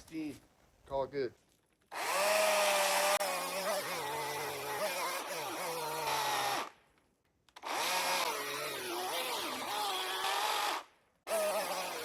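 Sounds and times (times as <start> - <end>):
electric chainsaw cutting wood: 1.9 - 6.8, 7.5 - 12.0.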